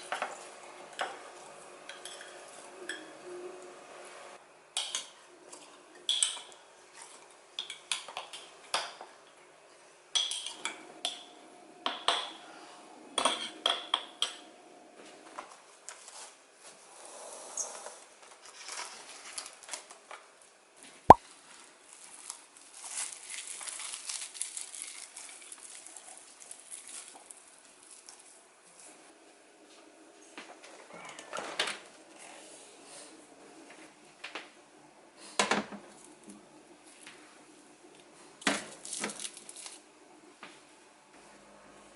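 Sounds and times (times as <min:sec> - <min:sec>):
dishes and utensils clinking: 0:01.9 - 0:03.1.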